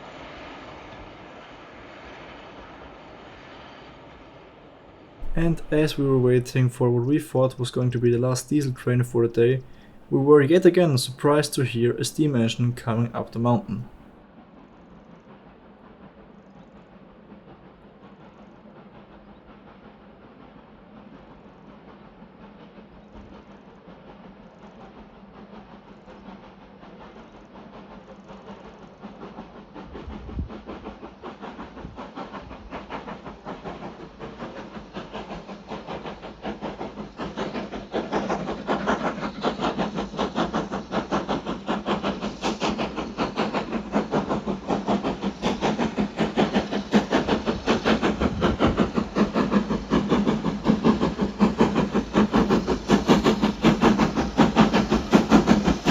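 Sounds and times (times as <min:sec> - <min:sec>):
steam hiss: 0:05.2 - 0:14.1, 0:28.6 - 0:55.9
steam locomotive exhaust beats: 0:05.2 - 0:14.1, 0:26.8 - 0:55.9.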